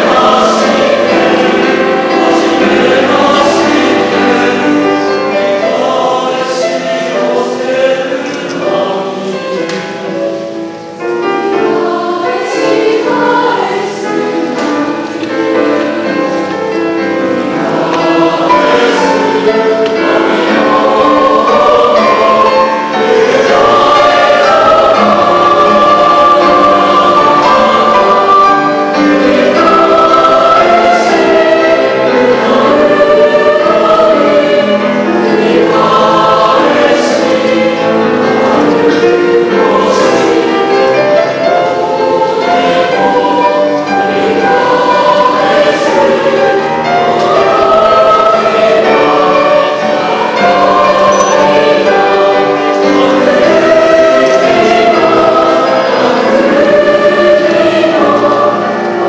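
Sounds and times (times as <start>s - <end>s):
piano accompaniment: 0.0s - 59.0s
young choir singing in harmony: 0.0s - 59.0s.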